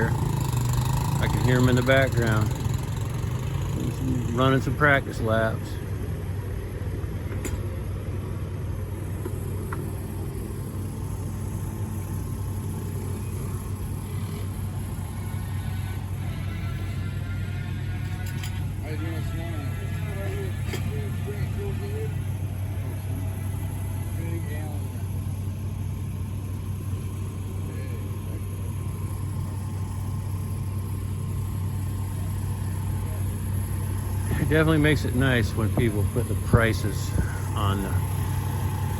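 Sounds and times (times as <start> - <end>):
distant racing motorcycles: 0.0 - 38.9
low engine drone: 0.0 - 38.9.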